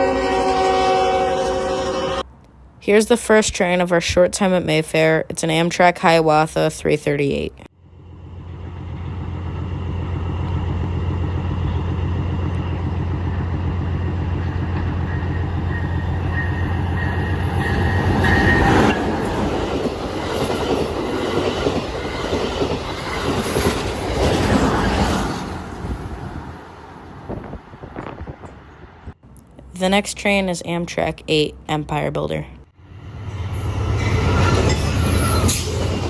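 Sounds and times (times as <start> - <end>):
diesel locomotive drone: 0.0 - 3.2, 6.2 - 36.0
train cars rumbling and clacking: 7.9 - 29.2, 32.8 - 36.0.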